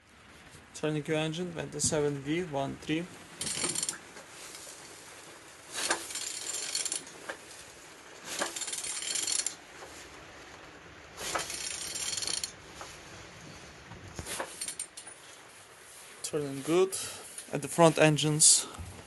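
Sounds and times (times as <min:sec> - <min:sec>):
ratchet wrench clicking: 0:03.4 - 0:04.0, 0:11.4 - 0:12.5.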